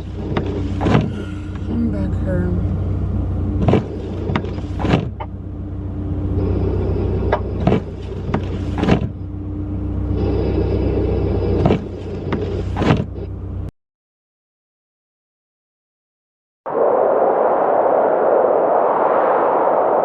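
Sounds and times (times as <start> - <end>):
car engine rumble inside cabin: 0.0 - 13.7.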